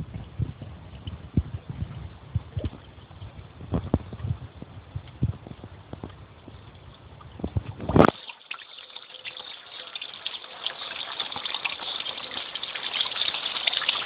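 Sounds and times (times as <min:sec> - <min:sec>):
low thumps on microphone: 0:00.0 - 0:08.2
water falling and splashing: 0:07.9 - 0:14.0.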